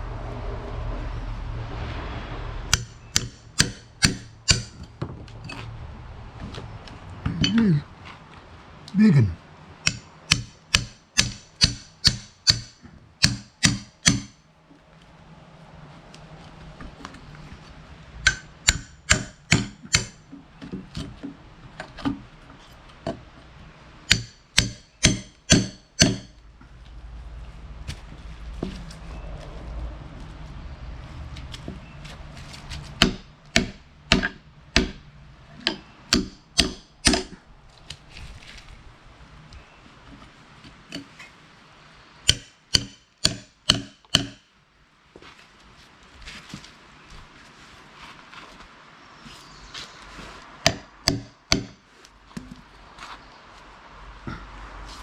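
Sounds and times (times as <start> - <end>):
hammer striking log: 2.7 - 5.1, 9.9 - 14.4, 18.2 - 20.2, 24.1 - 26.4, 33.0 - 37.4, 42.2 - 44.5, 50.6 - 51.8.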